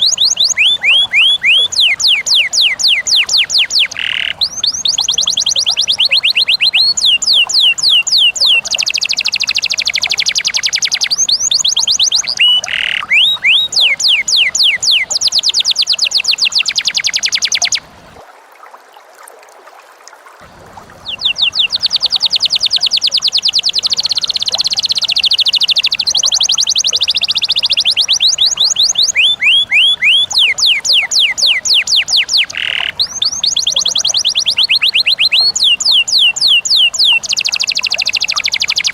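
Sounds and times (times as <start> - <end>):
bird singing shrill notes: 0.0 - 17.8, 21.0 - 38.9.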